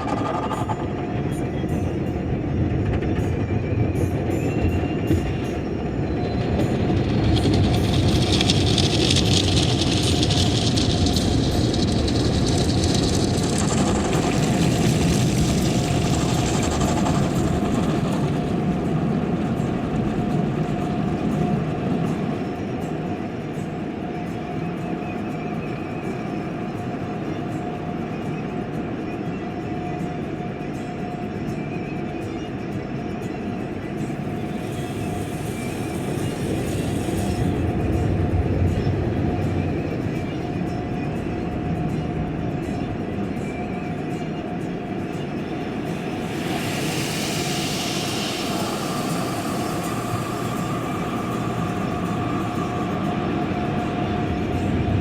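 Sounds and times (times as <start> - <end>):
car wash machinery rumbling: 5.6 - 23.8, 33.7 - 55.0
faint steady hum: 33.0 - 55.0
water spraying hiss: 34.1 - 38.0, 45.0 - 54.9.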